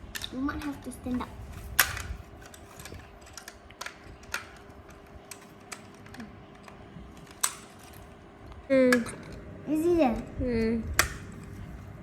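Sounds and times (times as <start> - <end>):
plastic toy bricks clicking: 0.0 - 8.0
faint steady hum: 0.0 - 12.0.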